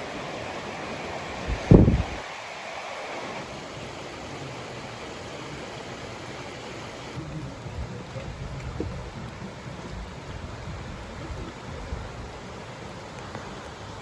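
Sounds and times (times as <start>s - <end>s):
wind rumbling on microphone: 0.0s - 2.3s, 7.1s - 14.0s
rush of flowing water: 0.0s - 14.0s.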